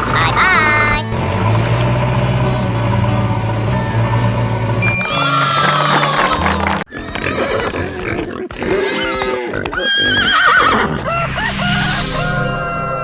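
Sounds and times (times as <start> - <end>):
background music: 0.0 - 7.2
horse whinnying: 4.8 - 11.2.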